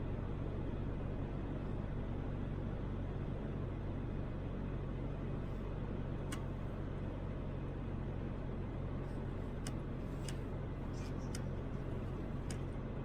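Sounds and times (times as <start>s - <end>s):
low engine hum: 0.0s - 13.0s
faint ticks: 9.6s - 12.7s.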